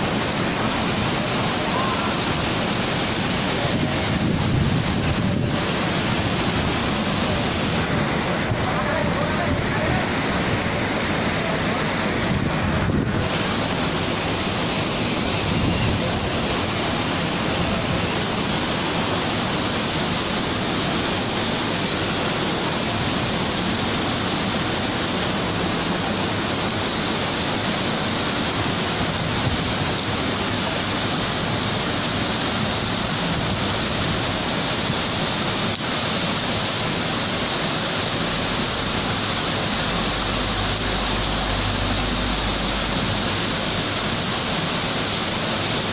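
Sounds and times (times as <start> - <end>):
flowing water rushing: 0.0 - 45.9.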